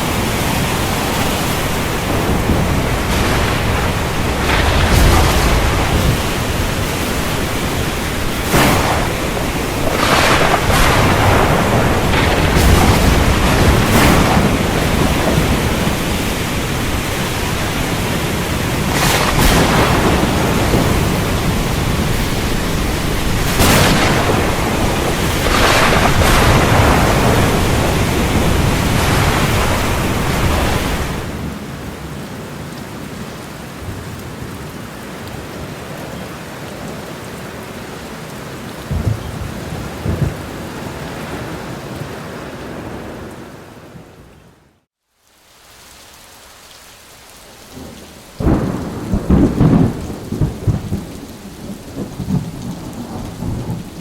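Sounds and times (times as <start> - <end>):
sharp thunderclaps: 0.0 - 31.4, 38.9 - 40.6, 48.4 - 51.2
low thunder rumbles: 0.0 - 31.6, 38.9 - 40.8, 47.8 - 54.0
heavy rain: 0.0 - 54.0.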